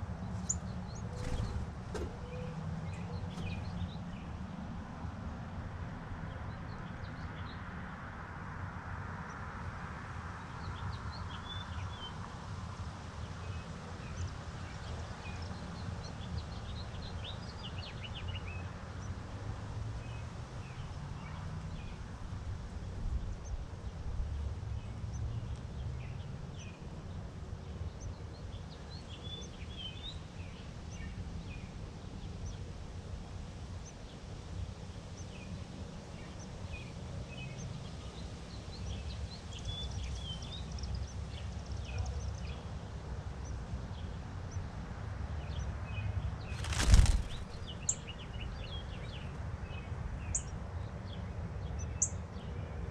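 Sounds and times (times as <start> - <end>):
small birds chirping: 0.0 - 4.6, 45.4 - 50.7.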